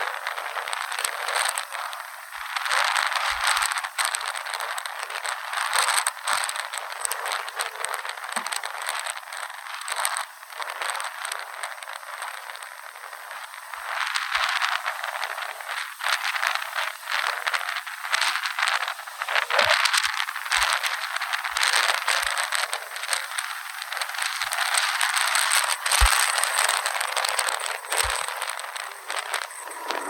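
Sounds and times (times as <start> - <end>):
rattling and crackling of objects: 0.0 - 30.0
strong wind gusting: 27.6 - 30.0.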